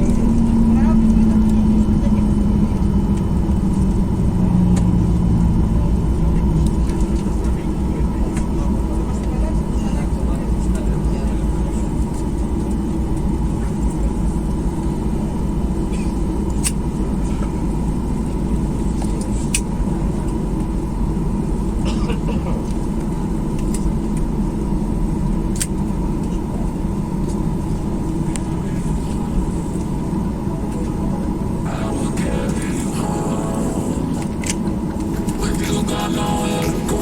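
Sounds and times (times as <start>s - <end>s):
jet engine rumble: 0.0s - 37.0s
cabin airflow: 26.6s - 37.0s
thin steady hum: 31.6s - 37.0s.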